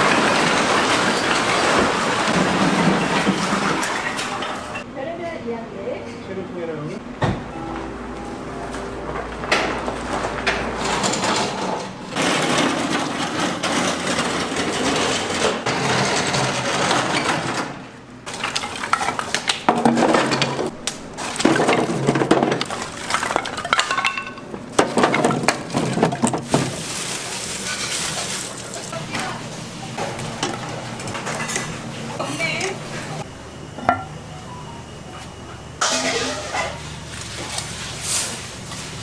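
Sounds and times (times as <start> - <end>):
hard objects clattering: 10.2 - 32.3.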